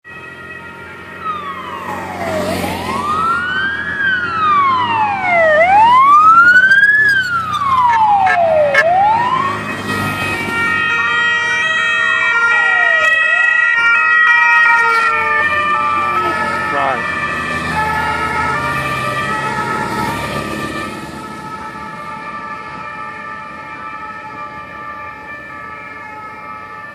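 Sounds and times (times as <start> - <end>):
vehicle siren wailing: 0.1 - 26.9
steady high tones: 6.2 - 8.3, 12.9 - 13.7, 14.6 - 15.4.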